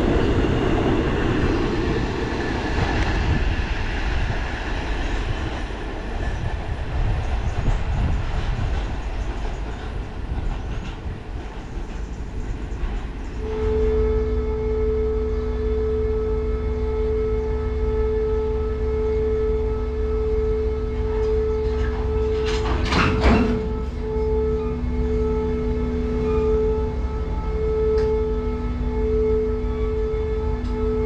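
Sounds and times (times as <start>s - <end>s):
freight train rolling past: 0.0s - 31.0s
siren-like tone: 13.4s - 31.0s.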